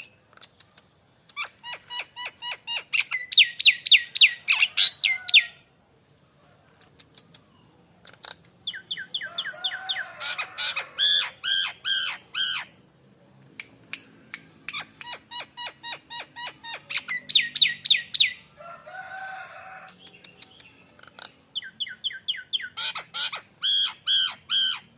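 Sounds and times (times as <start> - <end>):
myna whistled calls: 1.3 - 5.6, 14.7 - 18.4, 21.6 - 24.9
sharp clicks: 6.8 - 8.5.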